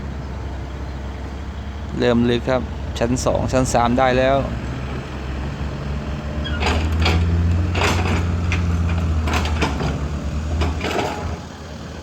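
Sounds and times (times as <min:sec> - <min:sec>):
diesel machine engine running: 0:00.0 - 0:12.0
sharp knocks and clanks: 0:06.2 - 0:11.4.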